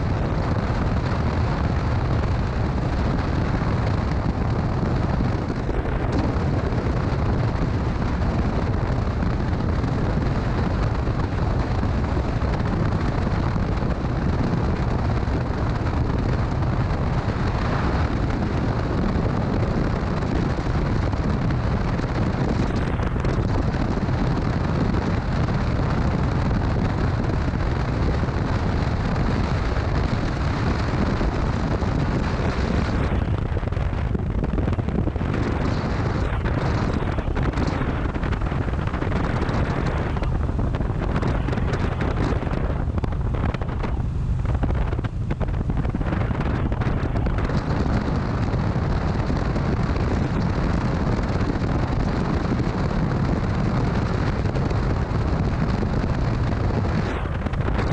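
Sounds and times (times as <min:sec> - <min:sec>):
road noise: 0:00.0 - 0:57.9
wind rushing on microphone: 0:00.0 - 0:57.9.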